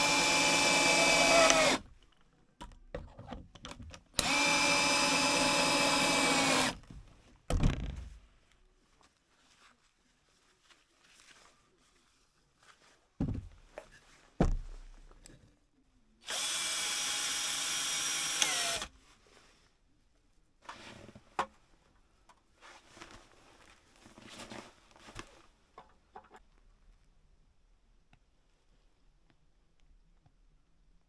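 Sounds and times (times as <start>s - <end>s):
electric power tool running: 0.0s - 1.8s, 4.2s - 6.8s, 16.3s - 18.9s.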